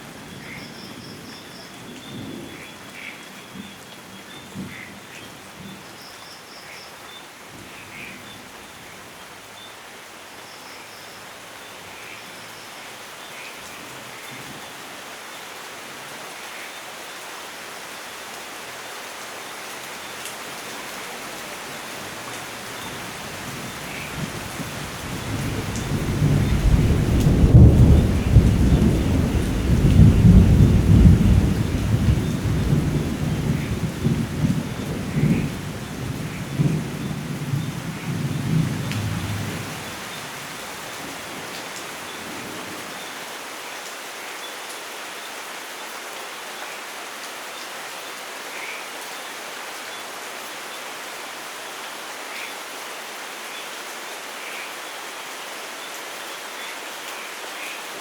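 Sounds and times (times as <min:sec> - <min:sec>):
steady rain falling: 0:00.0 - 0:58.0
rolling thunder: 0:24.2 - 0:40.1.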